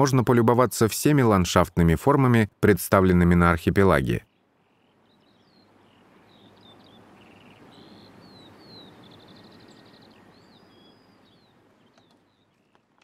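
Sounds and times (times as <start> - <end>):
wild birds chirping and whistling: 4.1 - 13.0
bird trill: 4.2 - 12.9.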